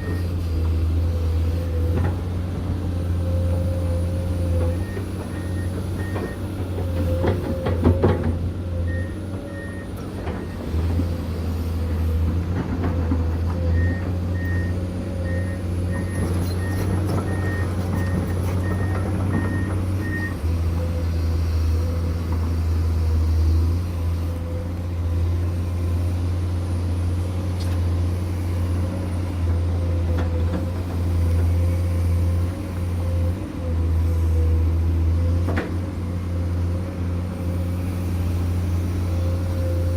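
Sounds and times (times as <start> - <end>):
diesel machinery engine drone: 0.0 - 39.9.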